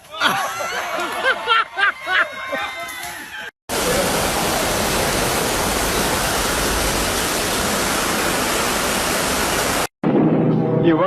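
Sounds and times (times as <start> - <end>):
loud steady rushing noise: 3.7 - 9.9.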